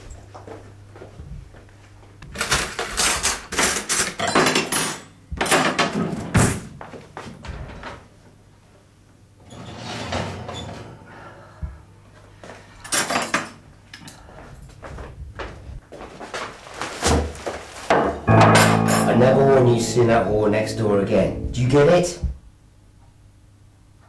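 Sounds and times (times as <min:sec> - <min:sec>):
doors and crockery clattering: 0:02.4 - 0:06.7, 0:09.5 - 0:11.0, 0:12.9 - 0:13.6
faint low hum: 0:18.3 - 0:23.2.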